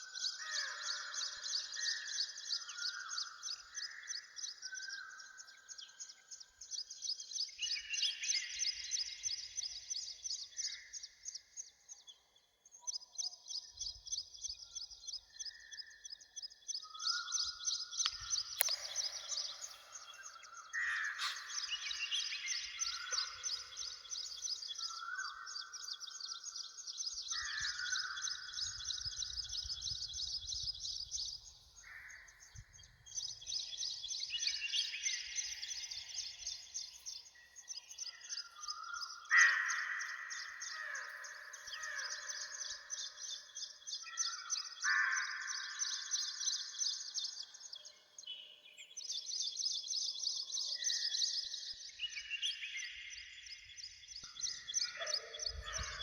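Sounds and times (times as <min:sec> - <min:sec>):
sharp clicks: 0:18.0 - 0:19.7.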